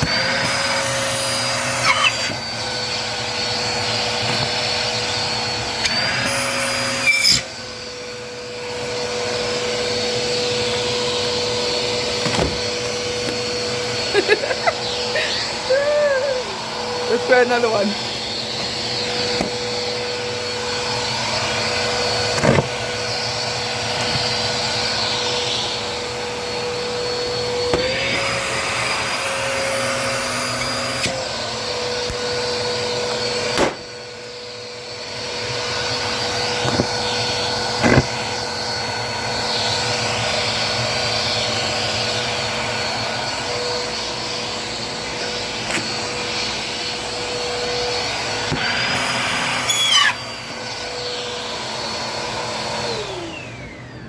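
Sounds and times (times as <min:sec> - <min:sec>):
vacuum cleaner running on carpet: 0:00.0 - 0:54.0.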